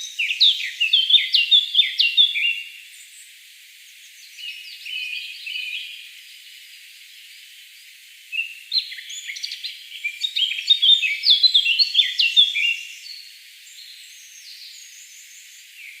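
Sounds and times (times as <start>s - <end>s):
faint steady hiss: 0.0s - 16.0s
birds chirping: 3.9s - 16.0s.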